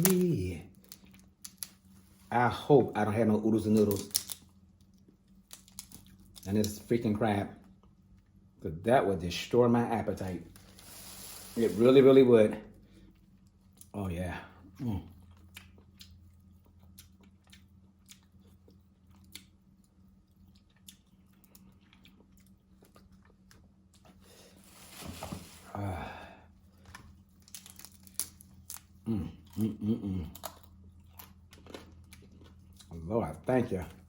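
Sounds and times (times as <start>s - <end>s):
person humming: 0.0s - 0.4s, 29.0s - 30.4s
crab shells cracking: 0.0s - 1.9s, 3.7s - 6.8s, 27.4s - 29.0s
faint electrical hum: 0.0s - 34.0s.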